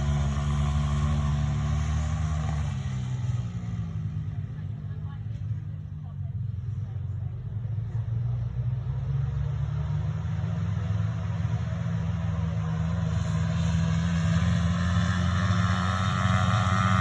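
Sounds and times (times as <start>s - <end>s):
small motorcycle engine running: 0.0s - 6.2s, 12.3s - 17.0s.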